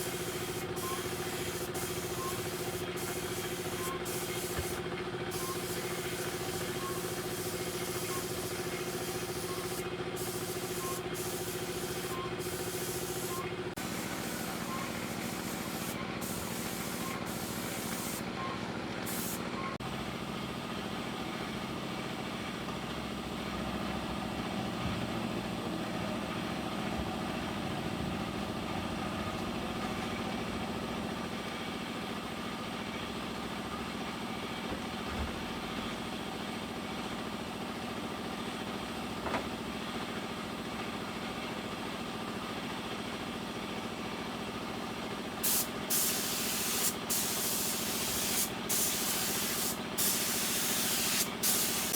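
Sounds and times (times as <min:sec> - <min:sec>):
motor running: 0:00.0 - 0:18.2
hiss: 0:05.4 - 0:18.2, 0:45.4 - 0:51.9.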